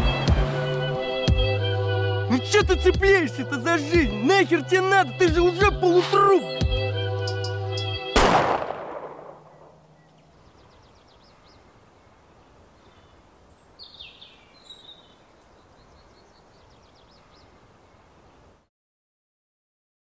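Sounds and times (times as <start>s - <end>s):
loud boom: 8.2s - 9.7s
faint forest ambience: 8.2s - 18.7s
small birds calling: 9.4s - 18.5s.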